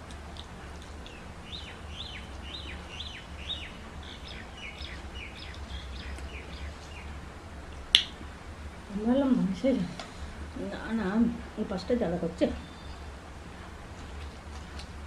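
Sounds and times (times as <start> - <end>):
low steady hum: 0.0 - 15.0
small bird chirping: 0.3 - 8.1.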